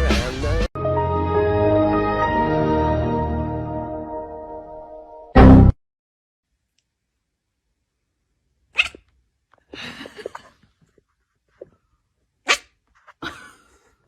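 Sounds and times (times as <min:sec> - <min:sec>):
dog sneezing: 0:08.8 - 0:09.0, 0:12.5 - 0:12.7.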